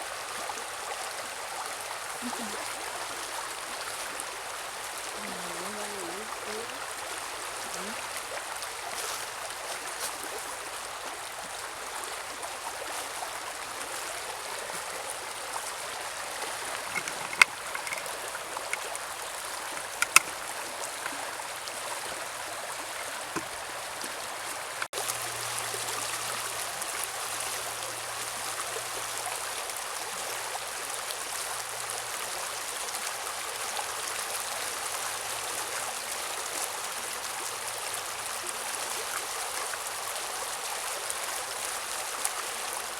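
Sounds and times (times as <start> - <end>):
sharp clicks: 16.9 - 18.1, 19.8 - 20.3.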